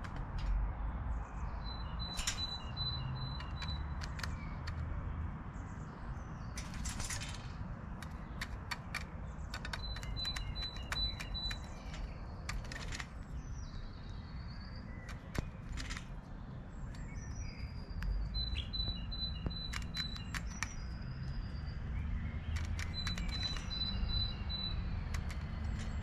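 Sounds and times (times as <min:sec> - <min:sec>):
sharp clicks and taps: 0:03.2 - 0:04.9, 0:06.6 - 0:13.4, 0:18.0 - 0:21.0, 0:22.5 - 0:26.0.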